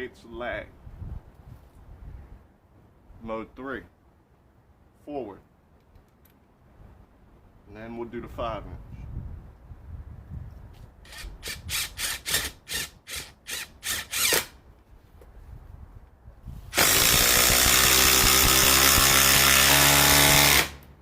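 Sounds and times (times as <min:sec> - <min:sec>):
impact driver driving a screw: 0:11.1 - 0:14.6, 0:16.8 - 0:20.8.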